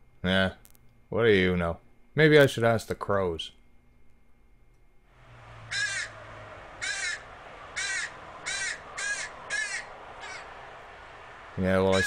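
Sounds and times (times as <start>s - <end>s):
crows cawing: 5.2s - 11.1s.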